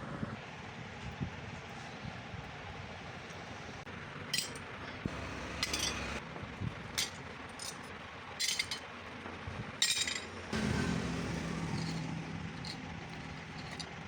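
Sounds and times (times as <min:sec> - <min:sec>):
metal clinks: 0:04.3 - 0:04.6, 0:05.2 - 0:06.2, 0:07.0 - 0:08.9, 0:09.8 - 0:10.3, 0:11.7 - 0:14.0.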